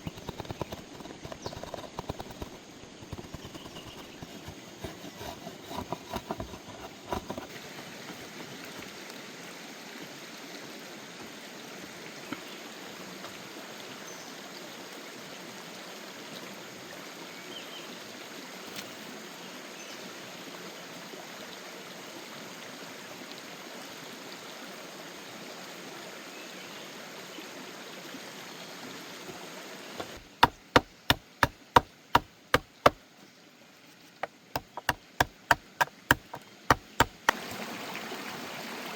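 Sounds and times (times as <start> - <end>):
loud sharp chopping strokes: 0.0 - 7.4, 30.0 - 33.0, 34.2 - 37.4
knocks: 0.0 - 7.5, 30.0 - 33.0, 34.6 - 37.4
flowing water: 33.7 - 38.9.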